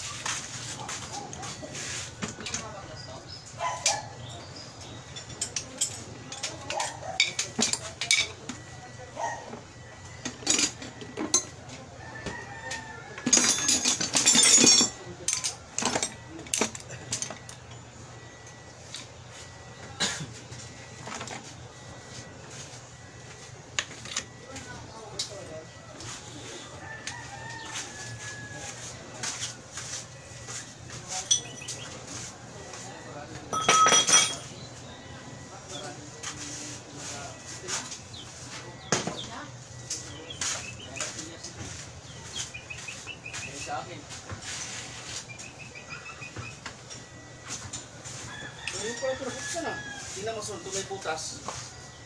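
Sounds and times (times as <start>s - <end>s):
metal tools clinking and knocking: 5.0s - 8.6s, 10.2s - 11.6s, 13.2s - 17.8s, 31.1s - 32.0s, 33.5s - 34.5s.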